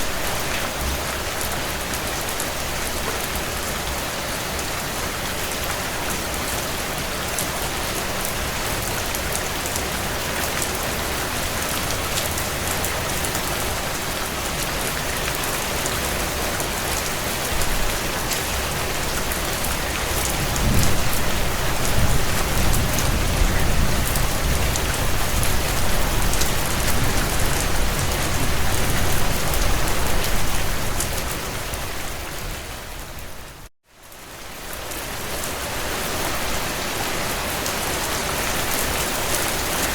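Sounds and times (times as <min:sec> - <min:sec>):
heavy rain on window glass: 0:14.6 - 0:31.0.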